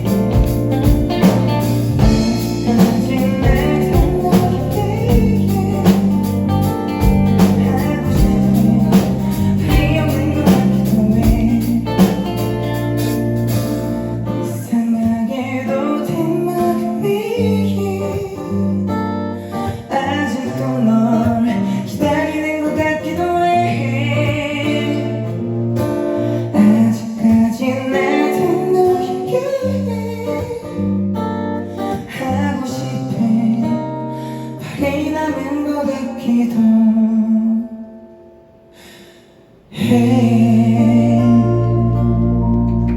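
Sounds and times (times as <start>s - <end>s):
bass and drums: 0.0s - 14.3s, 39.9s - 42.9s
guitar: 0.0s - 42.9s
person singing: 1.2s - 13.6s, 14.2s - 18.9s, 19.5s - 25.3s, 26.5s - 30.8s, 39.7s - 42.9s.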